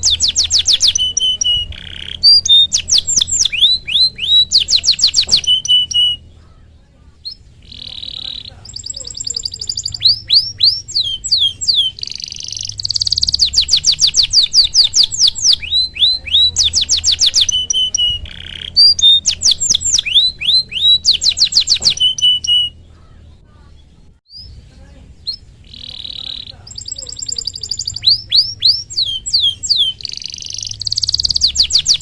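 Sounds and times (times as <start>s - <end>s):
canary singing trills and whistles: 0.0s - 32.0s.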